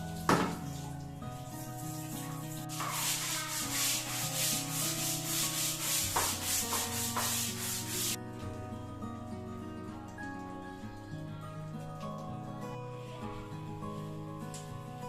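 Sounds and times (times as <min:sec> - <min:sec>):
background music: 0:00.0 - 0:15.0
brush scrubbing a surface: 0:00.1 - 0:08.2.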